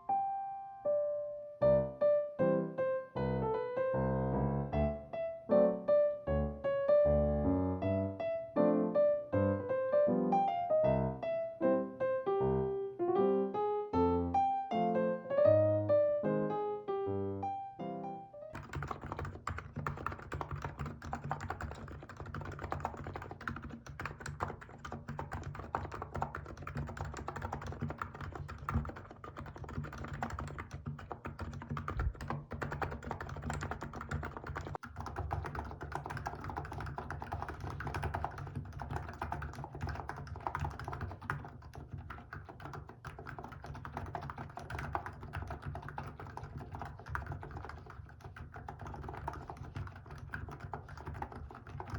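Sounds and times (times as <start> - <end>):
fast keyboard typing: 18.5 - 51.9.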